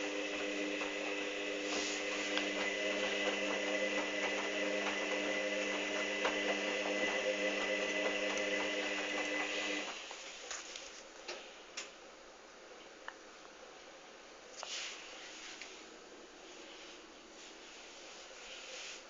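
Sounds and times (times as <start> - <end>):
washing machine humming: 0.0 - 10.8.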